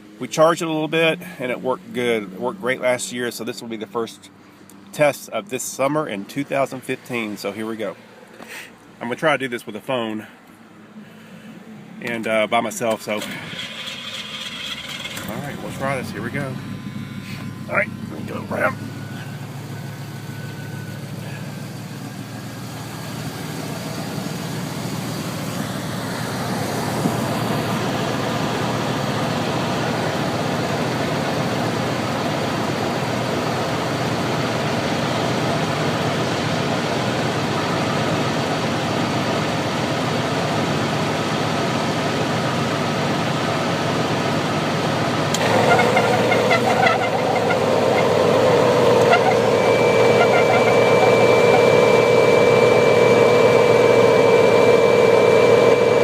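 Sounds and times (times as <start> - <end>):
car engine idling: 7.1 - 56.0
air conditioning blower rush: 12.1 - 56.0.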